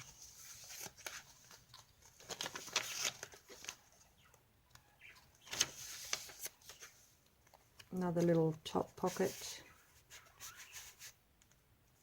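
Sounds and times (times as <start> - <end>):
paper pages rustling: 0.0 - 11.5.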